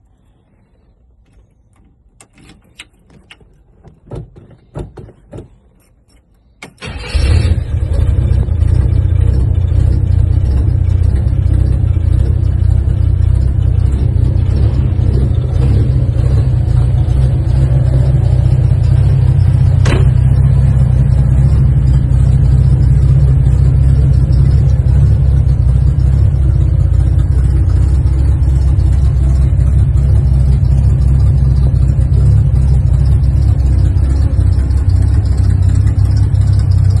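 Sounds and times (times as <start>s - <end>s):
car engine starting and idling: 0.1s - 37.0s
clicks and knocks: 0.5s - 6.8s.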